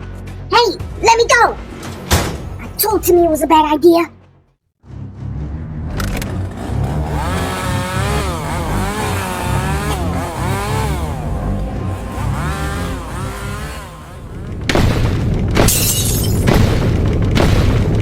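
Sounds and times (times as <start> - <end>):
chainsaw revving: 6.2 - 14.7.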